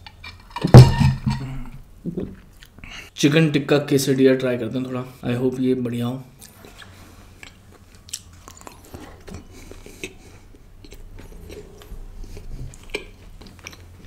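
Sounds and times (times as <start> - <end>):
low steady hum: 0.0 - 14.0
chewing with soft crunches: 6.4 - 14.0.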